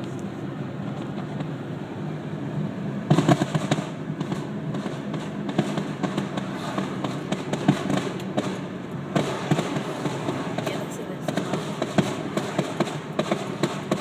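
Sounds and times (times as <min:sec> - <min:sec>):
low background rumble: 0:00.0 - 0:14.0
fireworks crackling: 0:03.1 - 0:14.0.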